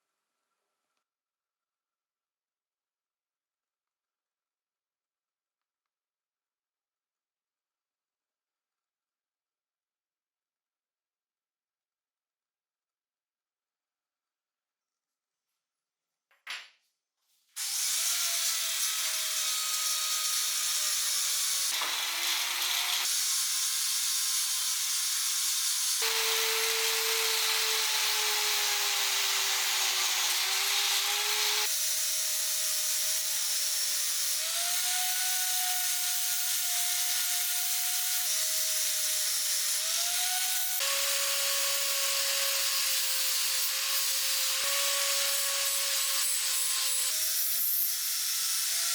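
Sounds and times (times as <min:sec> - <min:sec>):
power tool grinding: 0:17.6 - 0:48.9.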